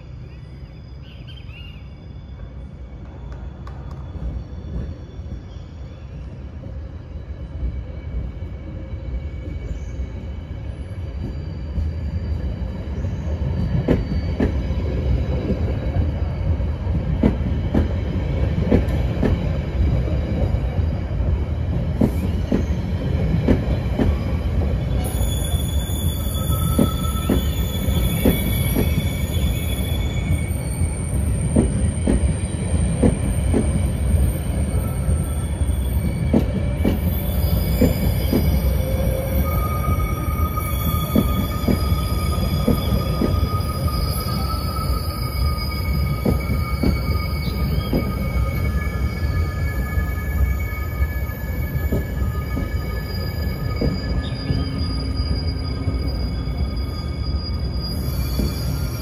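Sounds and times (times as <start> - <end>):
train rolling rumble: 0.0 - 59.0
high-pitched wheel squeal: 24.1 - 59.0.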